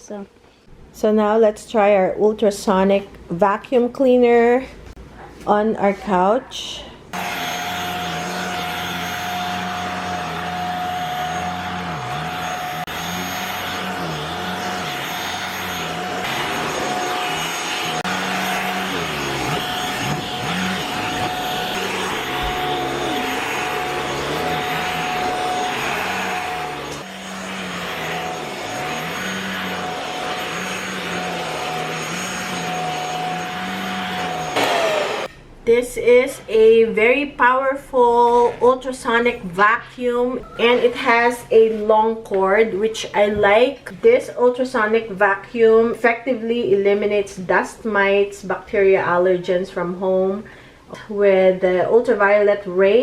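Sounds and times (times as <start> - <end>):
handheld vacuum whirring: 7.2 - 35.3.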